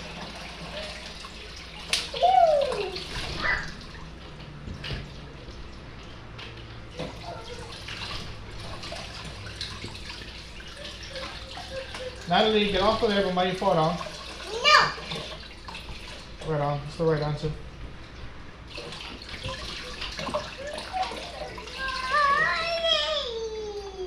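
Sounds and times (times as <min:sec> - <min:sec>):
tap water running into sink: 0:00.0 - 0:23.1.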